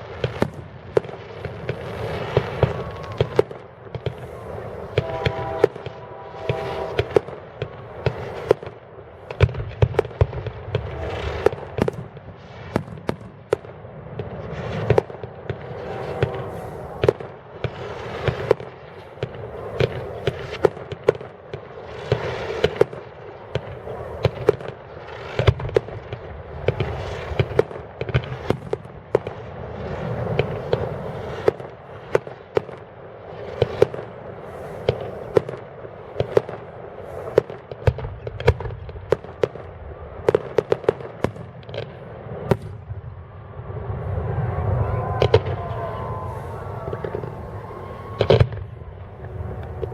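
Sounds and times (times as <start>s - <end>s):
firework shells bursting: 0.0s - 13.6s, 14.3s - 21.3s
fireworks crackling and hissing: 0.0s - 49.9s.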